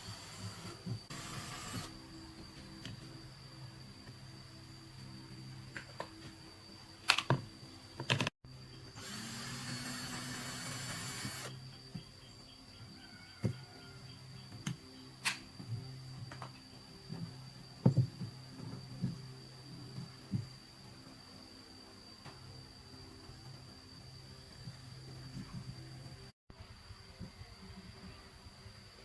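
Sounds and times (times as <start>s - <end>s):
loud hissing whirring burst: 0.0s - 2.0s.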